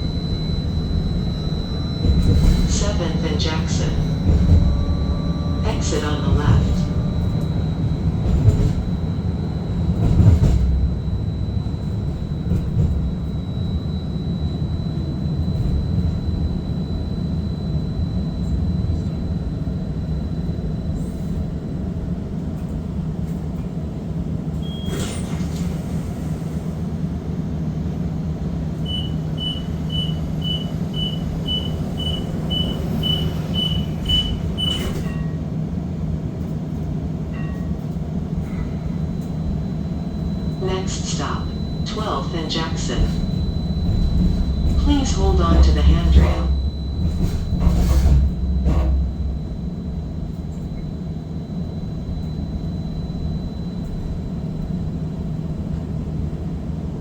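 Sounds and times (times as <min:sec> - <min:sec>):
streetcar low hum: 0:00.0 - 0:57.0
short high beeps: 0:00.4 - 0:08.1, 0:28.9 - 0:35.3.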